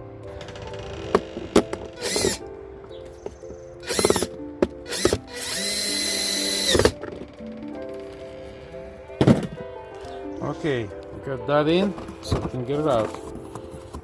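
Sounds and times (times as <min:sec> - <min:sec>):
background music: 0:00.0 - 0:14.0
power drill running: 0:01.9 - 0:02.4, 0:03.8 - 0:04.3, 0:04.9 - 0:07.0.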